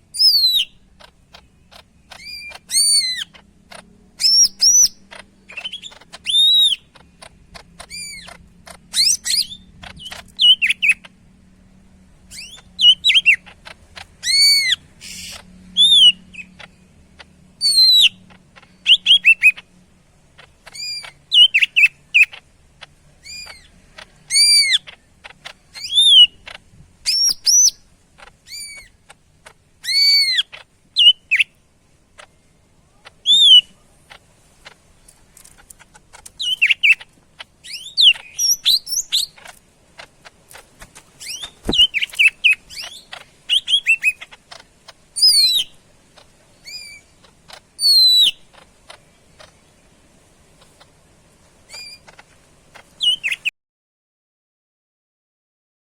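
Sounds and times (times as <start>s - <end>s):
bird singing whistles: 0.1s - 0.8s, 2.2s - 3.3s, 4.2s - 6.8s, 9.0s - 11.0s, 14.2s - 16.5s, 17.6s - 18.2s, 18.9s - 19.6s, 25.8s - 26.4s, 27.1s - 27.8s, 33.2s - 33.7s, 37.6s - 39.4s, 41.2s - 44.3s, 45.2s - 45.8s, 47.8s - 48.4s, 53.0s - 53.5s.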